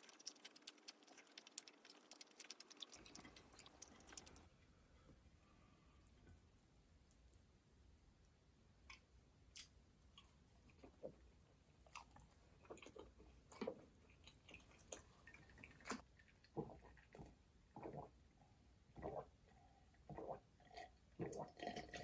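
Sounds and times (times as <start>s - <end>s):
mouth clicks and smacks: 0.0s - 4.5s
person chewing food: 0.0s - 4.5s, 11.8s - 18.1s.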